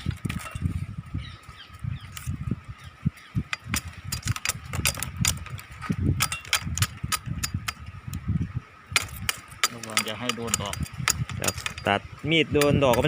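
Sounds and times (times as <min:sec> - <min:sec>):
wind buffeting microphone: 0:00.0 - 0:13.0
knife cutting thorns: 0:03.4 - 0:08.0, 0:08.9 - 0:13.0.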